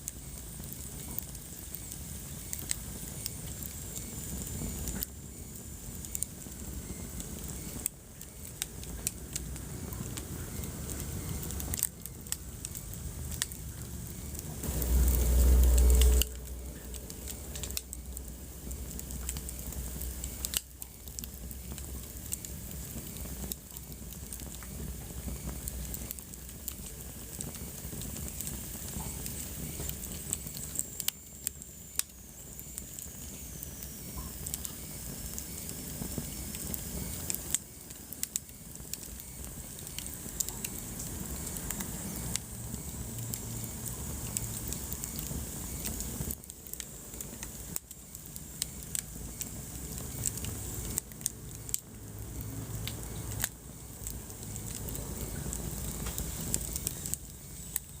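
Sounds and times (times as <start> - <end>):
wood fire crackling: 0.0 - 58.0
faint high whistle: 13.9 - 18.2.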